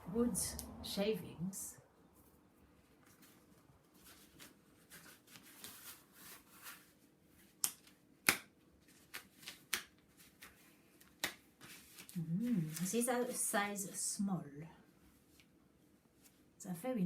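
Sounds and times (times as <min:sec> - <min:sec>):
rubber gloves rustling: 0:02.1 - 0:13.3
rubber gloves snapping: 0:07.5 - 0:11.5.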